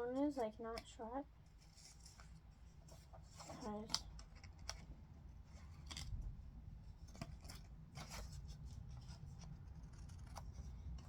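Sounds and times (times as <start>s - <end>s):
scissors snipping paper: 9.4s - 11.0s.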